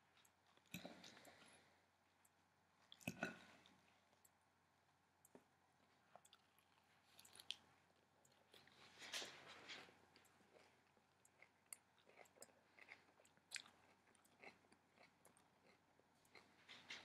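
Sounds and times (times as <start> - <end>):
person chewing crunchy salad: 6.1 - 8.8, 10.5 - 16.5.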